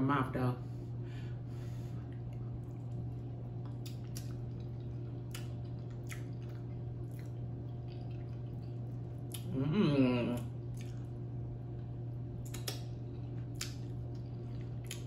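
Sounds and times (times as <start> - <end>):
low hum: 0.0 - 15.0
person chewing wetly: 1.9 - 9.6, 10.4 - 15.0.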